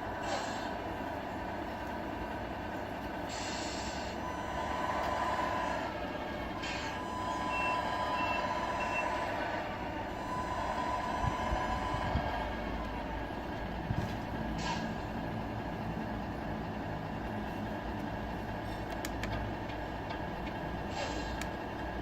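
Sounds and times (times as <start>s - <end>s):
diesel truck engine sound: 0.0s - 22.0s
air-brake hiss: 0.2s - 0.8s, 3.3s - 4.2s, 14.5s - 15.1s, 20.9s - 21.5s.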